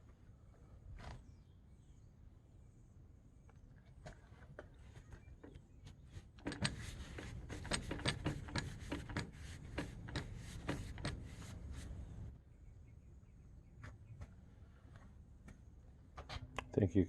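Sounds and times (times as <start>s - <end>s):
irregular clicks and knocks: 4.0s - 11.6s
hand scrubbing metal: 6.2s - 12.3s.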